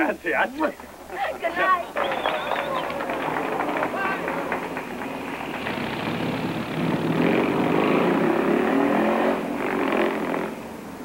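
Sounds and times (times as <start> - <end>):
car engine revving: 3.2 - 10.6.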